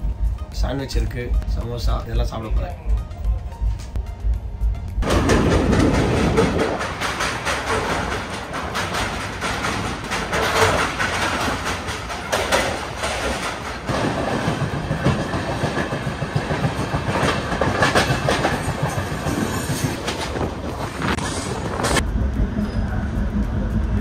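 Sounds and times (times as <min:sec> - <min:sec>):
steady rush of train noise: 0:00.0 - 0:24.0
train wheels clattering over rail joints: 0:05.0 - 0:22.0.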